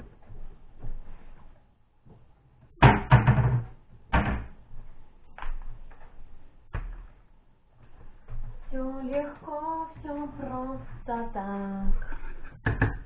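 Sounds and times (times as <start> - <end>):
kitchen knocks and clunks: 2.7 - 4.6, 12.5 - 13.0.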